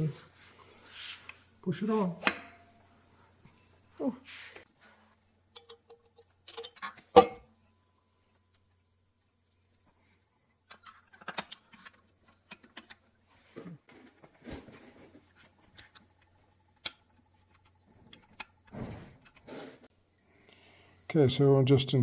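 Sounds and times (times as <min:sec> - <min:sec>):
soft rustles: 0:00.0 - 0:01.5.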